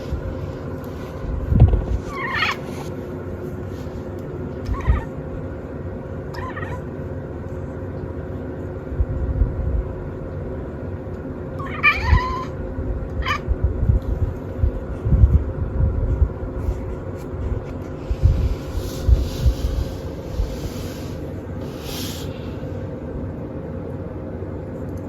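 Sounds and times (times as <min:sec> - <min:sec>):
low hum: 0:00.0 - 0:25.0
cat chirping mews: 0:02.1 - 0:02.7, 0:11.6 - 0:12.6.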